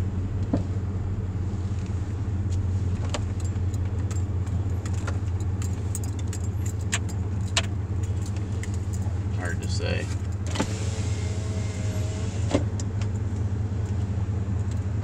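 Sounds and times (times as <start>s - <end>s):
car cabin rumble: 0.0s - 15.0s
light clicks and rattles: 3.0s - 9.1s.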